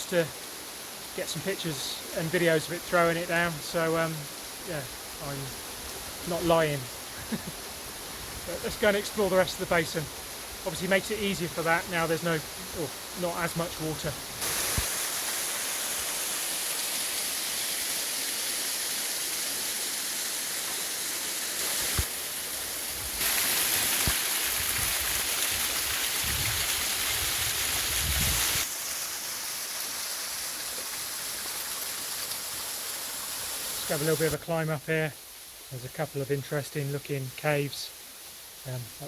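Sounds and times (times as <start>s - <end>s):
waterfall rushing: 0.0s - 28.7s.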